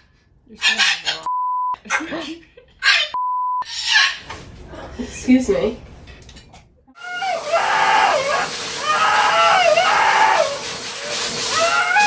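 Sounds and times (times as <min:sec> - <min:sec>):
blow dryers hissing: 0:07.0 - 0:12.0
dog howling: 0:07.0 - 0:12.0.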